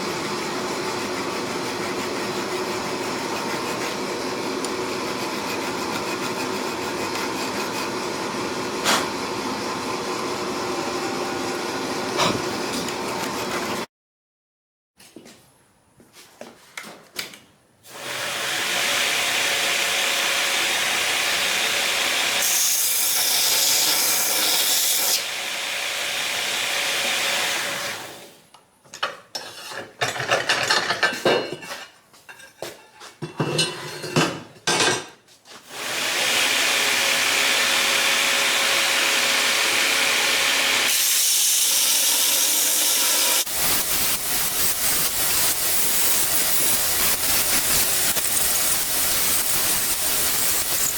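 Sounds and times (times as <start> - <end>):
scraping on steel: 29.4 - 30.2
steady hissing rush: 43.5 - 50.9.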